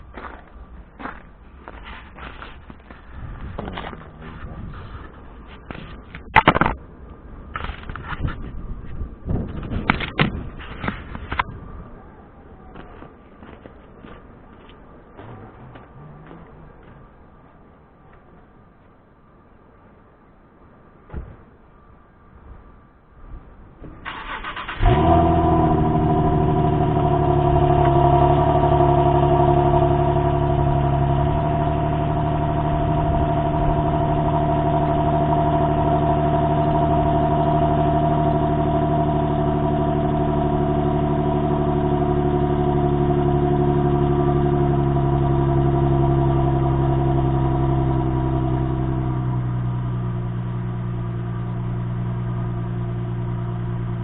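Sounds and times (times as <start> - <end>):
car engine fast idle: 24.0 - 54.0.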